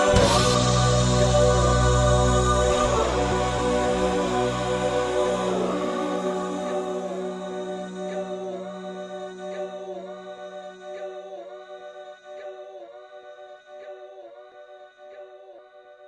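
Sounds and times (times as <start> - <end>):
low drone: 0.0 - 11.1
wordless choir-like voices: 0.0 - 16.0.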